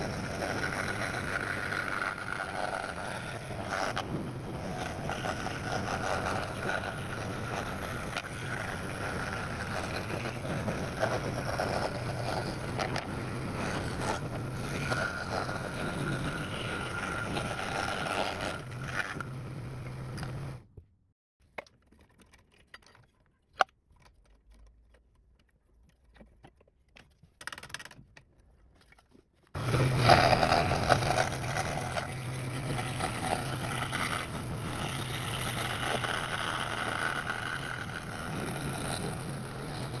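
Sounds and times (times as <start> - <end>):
bandsaw running: 0.0 - 19.6, 29.6 - 40.0.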